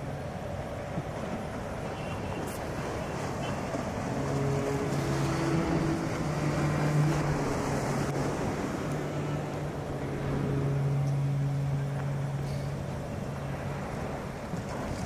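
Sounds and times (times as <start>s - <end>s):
low sustained drone: 3.8s - 14.2s.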